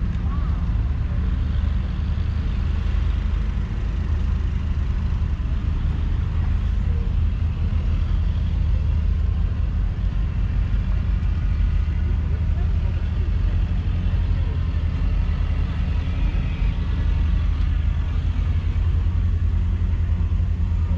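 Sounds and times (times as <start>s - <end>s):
diesel engine running steadily: 0.0s - 20.9s.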